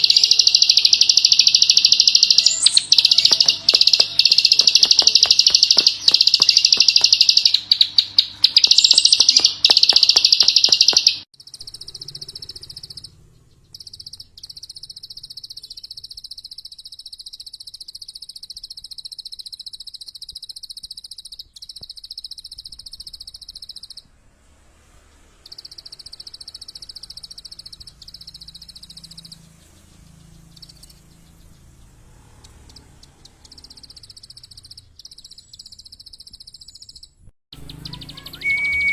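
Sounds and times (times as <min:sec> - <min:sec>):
songbird clicking notes: 0:00.0 - 0:13.1, 0:13.7 - 0:23.9
high buzzy bird trills: 0:00.0 - 0:24.1, 0:25.4 - 0:38.9.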